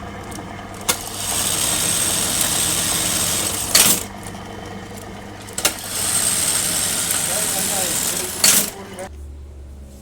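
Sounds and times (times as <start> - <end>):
sewing machine running: 0.0 - 9.1
quiet motor hum: 0.0 - 10.0
loud machine clack: 0.8 - 4.2, 5.4 - 8.8.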